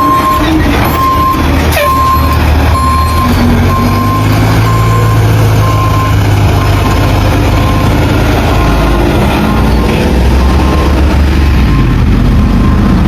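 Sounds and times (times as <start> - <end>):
reversing alarm beeps: 0.0 - 7.0, 10.4 - 11.1, 11.7 - 12.0, 12.6 - 13.0
diesel engine rumble: 0.0 - 13.0.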